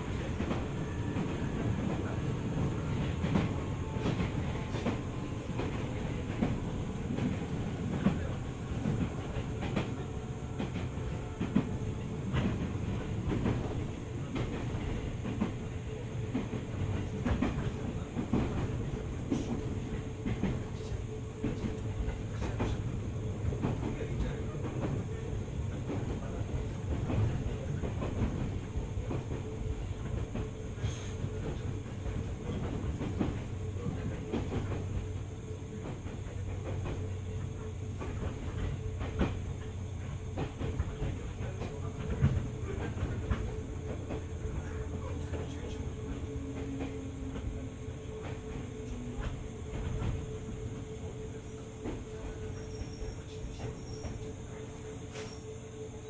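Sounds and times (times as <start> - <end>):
train wheels clicking over rail joints: 16.3 - 50.3.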